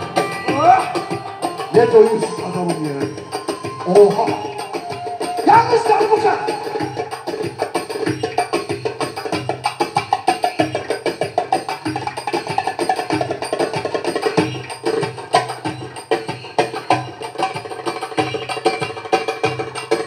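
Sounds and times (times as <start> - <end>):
pitched accompaniment: 0.0 - 20.0.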